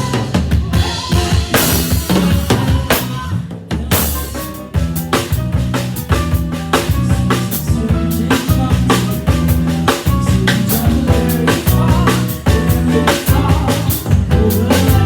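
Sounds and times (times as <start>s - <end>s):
band playing instrumental: 0.0s - 15.0s
drum kit: 0.0s - 15.0s
walking bass line: 4.2s - 15.0s.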